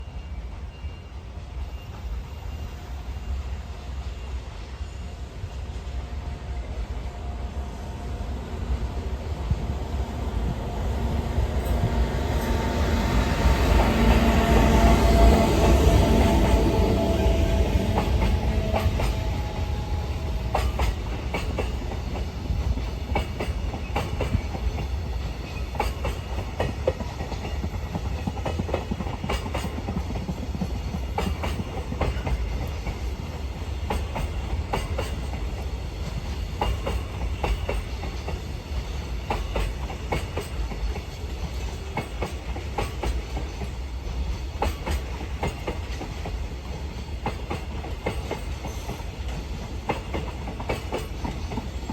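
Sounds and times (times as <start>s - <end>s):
freight train rumbling: 0.0s - 51.9s
wheels clacking over rail joints: 13.4s - 51.9s.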